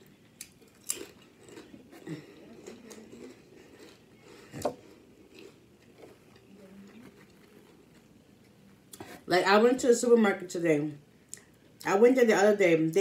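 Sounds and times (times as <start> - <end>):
potato chip crunching: 0.3 - 6.0.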